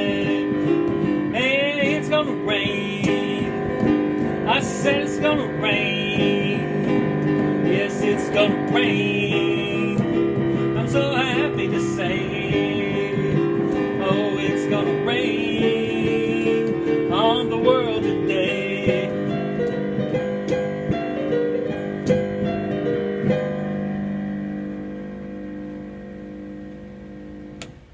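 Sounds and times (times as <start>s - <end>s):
piano and guitar chords: 0.0s - 27.9s.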